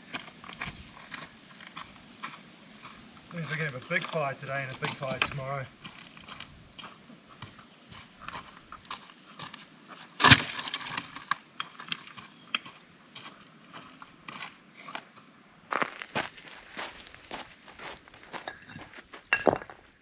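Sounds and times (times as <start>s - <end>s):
branches snapping and cracking: 10.2s - 12.7s.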